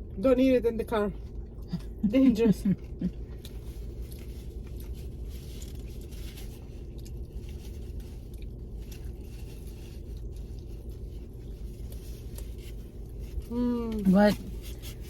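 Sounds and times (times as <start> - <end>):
steady low hum: 0.0 - 15.0
taco being chewed: 1.1 - 15.0
crunching and crackling: 2.8 - 15.0.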